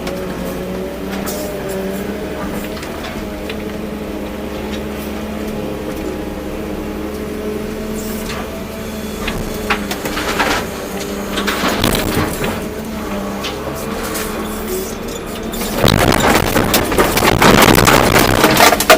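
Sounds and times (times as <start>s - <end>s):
excavator diesel engine running: 0.0s - 18.9s
metal clanks and scrapes: 0.1s - 3.3s, 7.9s - 18.9s.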